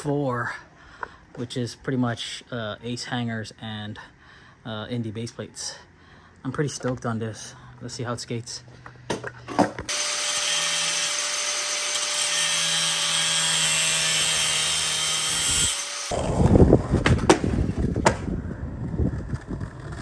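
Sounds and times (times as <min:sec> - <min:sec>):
skateboard wheels rolling on concrete: 0:16.1 - 0:20.0.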